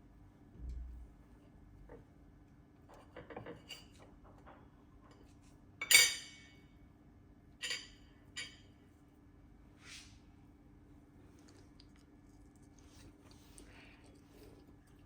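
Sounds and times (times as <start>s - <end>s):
sharp clink of dishes: 5.8s - 6.7s, 7.6s - 8.8s.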